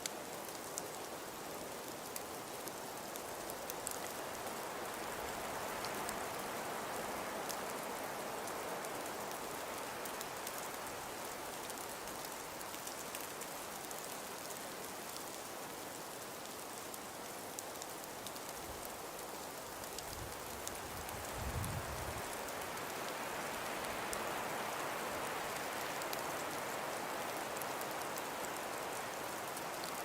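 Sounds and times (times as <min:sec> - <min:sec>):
wind-driven snow hissing: 0:19.7 - 0:30.0.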